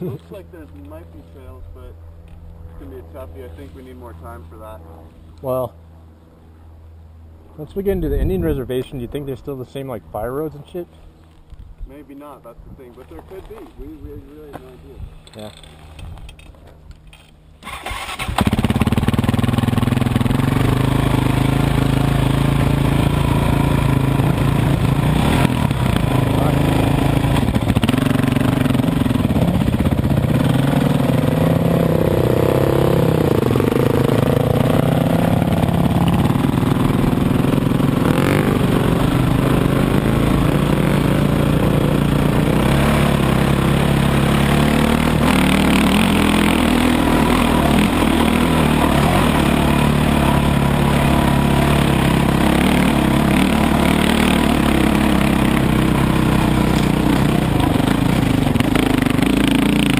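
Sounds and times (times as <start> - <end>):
dirt bike engine revving: 17.6 - 59.9.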